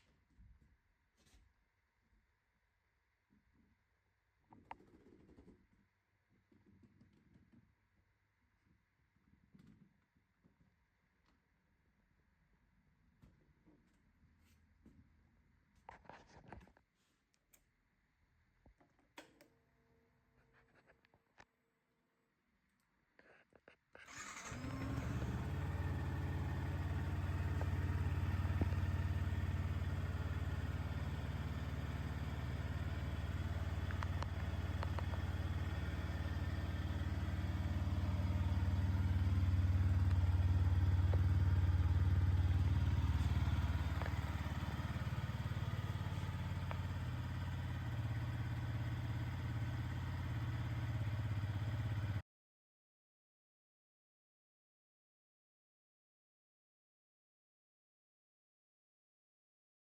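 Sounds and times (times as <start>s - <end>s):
motorcycle engine idling: 24.1s - 52.2s.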